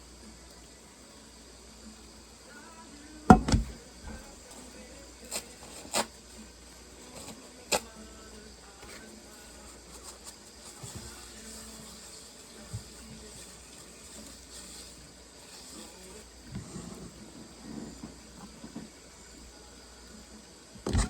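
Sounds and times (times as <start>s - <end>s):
faint steady hiss: 0.0s - 21.0s
loud knock of kitchenware: 3.3s - 3.8s
kitchenware clinking: 3.3s - 4.2s.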